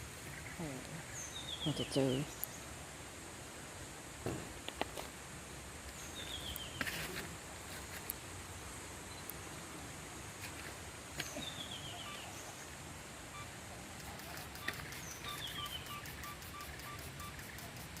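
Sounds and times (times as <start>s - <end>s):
high insect drone: 14.0s - 18.0s.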